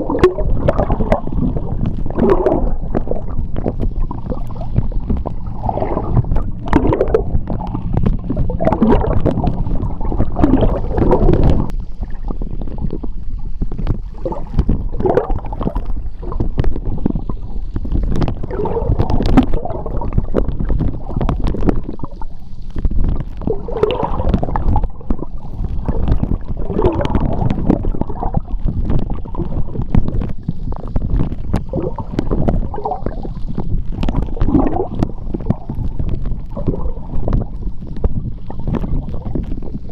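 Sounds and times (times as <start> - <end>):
gurgling bubbles: 0.0 - 39.9
small clicks underwater: 0.0 - 39.9
underwater churning rumble: 0.0 - 39.9.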